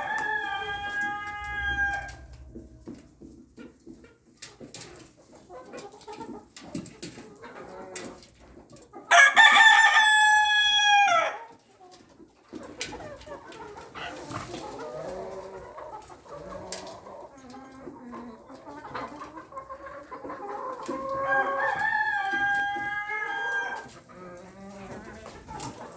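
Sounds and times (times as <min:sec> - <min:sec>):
rooster crowing: 0:00.0 - 0:02.2, 0:09.1 - 0:11.4
chickens clucking: 0:00.0 - 0:25.9.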